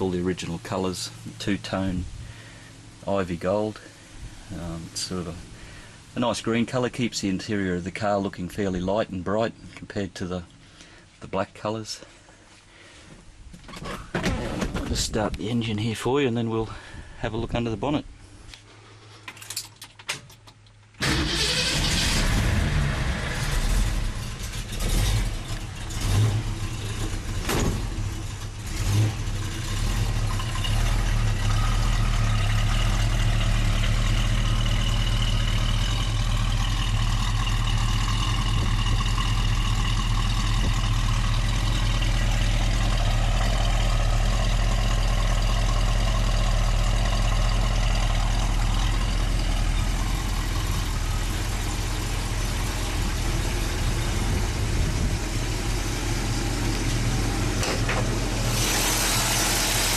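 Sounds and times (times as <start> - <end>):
car engine idling: 0.0 - 11.1, 20.8 - 59.9
engine knocks: 23.4 - 59.9.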